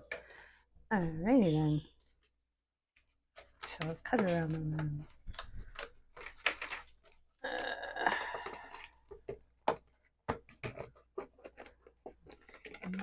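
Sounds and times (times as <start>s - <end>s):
rasping crunch of plastic: 3.0s - 13.0s
scissors snipping plastic: 3.4s - 7.3s, 8.0s - 13.0s.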